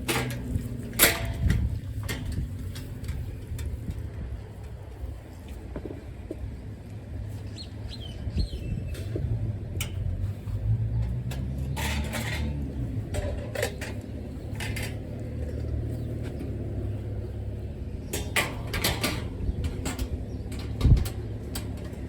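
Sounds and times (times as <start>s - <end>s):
steady low rumble: 0.0s - 22.0s
panels clattering and scraping: 10.3s - 15.6s.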